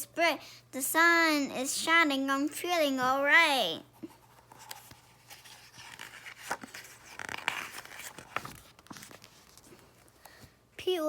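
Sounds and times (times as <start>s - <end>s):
book pages rustling and turning: 4.0s - 10.5s.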